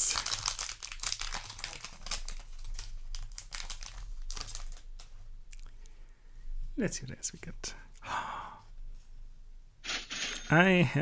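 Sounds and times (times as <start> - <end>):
foil wrapper crinkling: 0.0 - 5.1.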